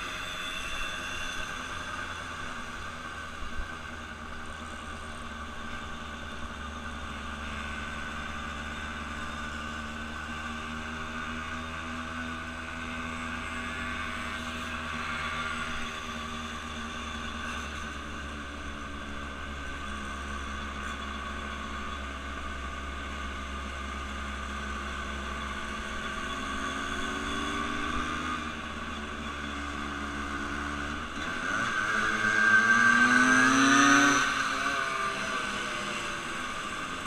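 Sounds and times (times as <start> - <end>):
vehicle engine running: 0.0 - 37.0
engine revving up: 30.3 - 36.9.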